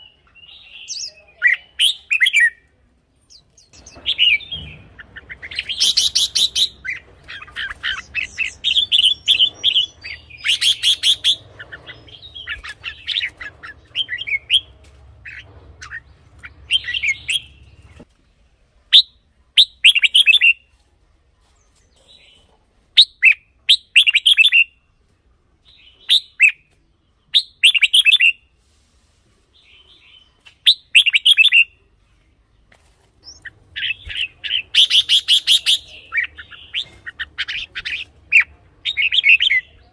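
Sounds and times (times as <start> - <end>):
bird singing warbling phrases: 0.0 - 18.1, 18.9 - 20.7, 21.9 - 24.9, 29.6 - 31.8, 33.2 - 39.9.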